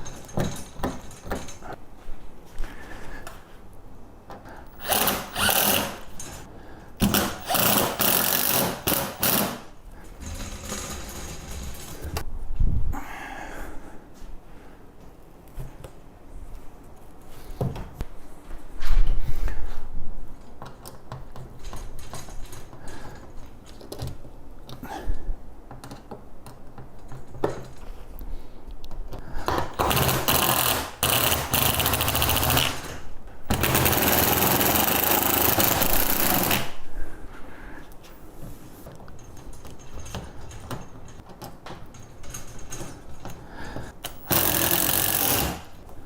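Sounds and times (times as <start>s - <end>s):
knocks and clatter of parts: 0.0s - 1.8s, 4.2s - 12.3s, 20.3s - 24.9s, 25.6s - 28.1s, 28.9s - 36.8s, 38.8s - 46.0s
power tool running: 4.8s - 6.0s, 7.0s - 9.6s, 29.8s - 36.7s, 44.1s - 45.7s.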